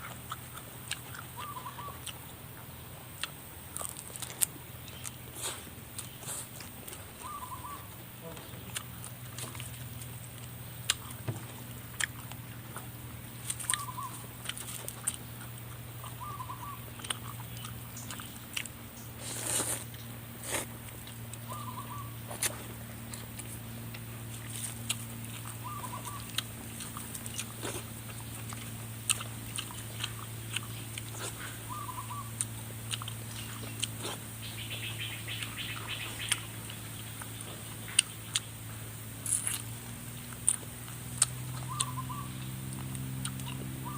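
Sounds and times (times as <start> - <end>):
crunching and chewing: 0.0 - 43.9
steady low hum: 0.0 - 43.9
bird call: 1.4 - 2.0, 7.2 - 8.4, 13.6 - 14.3, 16.2 - 16.9, 21.4 - 22.5, 25.5 - 26.4, 31.2 - 32.4, 34.4 - 36.5, 41.5 - 42.5.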